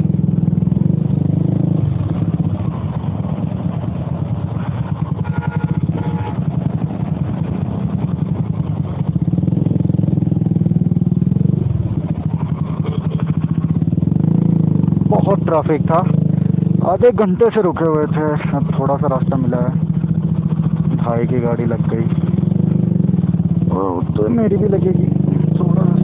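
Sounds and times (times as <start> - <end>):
motorcycle engine at low revs: 0.0 - 26.0.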